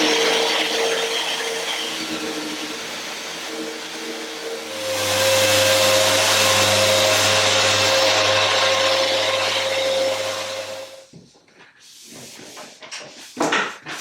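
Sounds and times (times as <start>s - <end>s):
electric power tool motor: 0.0s - 11.0s.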